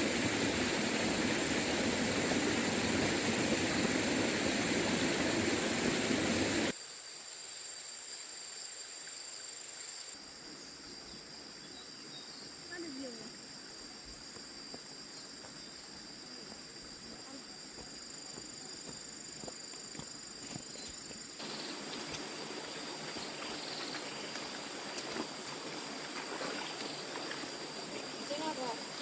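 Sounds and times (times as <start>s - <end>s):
insects trilling: 0.0s - 29.0s
outdoor background hiss: 0.0s - 29.0s.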